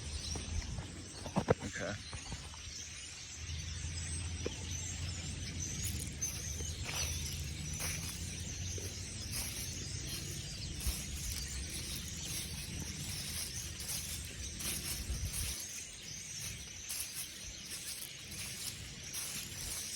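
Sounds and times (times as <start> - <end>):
flock of birds calling: 5.6 - 19.9.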